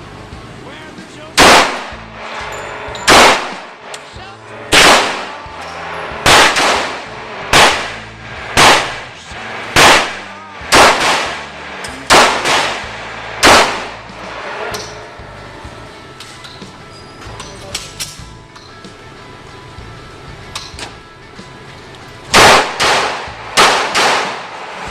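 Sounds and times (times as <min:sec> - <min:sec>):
gunshots with short echo: 0:01.4 - 0:04.1, 0:04.7 - 0:14.8, 0:22.3 - 0:24.9.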